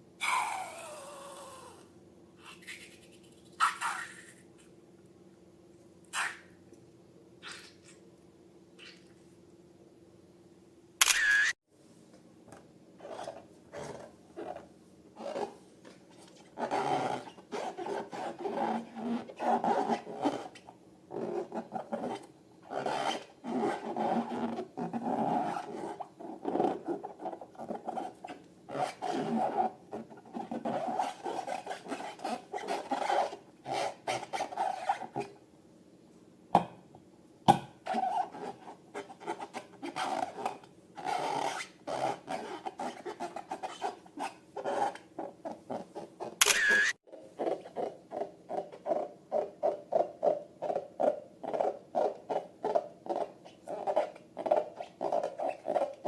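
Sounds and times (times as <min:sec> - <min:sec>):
sharp clicks: 0:46.4 - 0:46.9.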